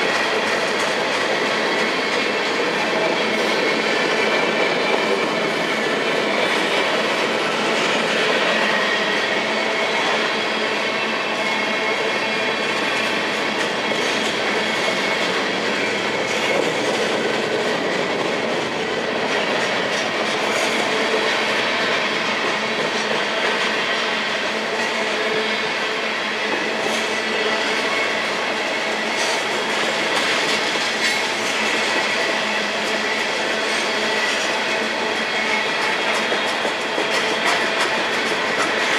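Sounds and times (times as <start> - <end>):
train wheels running on rails: 0.0 - 38.9.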